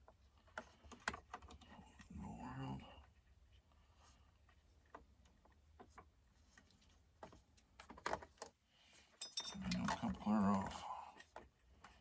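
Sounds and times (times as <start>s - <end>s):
light clicks and taps of tools: 4.4s - 12.0s.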